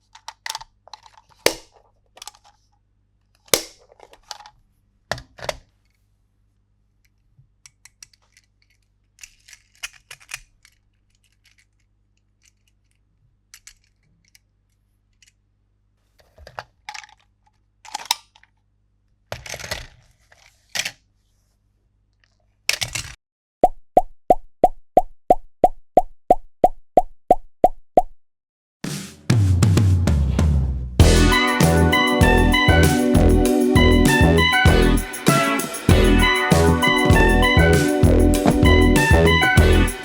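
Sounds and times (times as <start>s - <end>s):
small plastic clicks: 0.0s - 6.0s, 7.0s - 15.4s, 16.4s - 18.6s.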